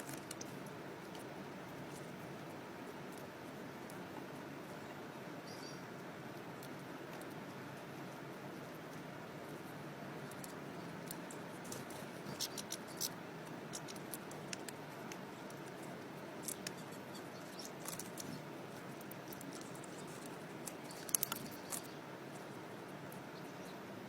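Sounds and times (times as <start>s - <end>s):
birds cracking seeds: 0.0s - 23.8s
faint steady hiss: 0.0s - 24.0s.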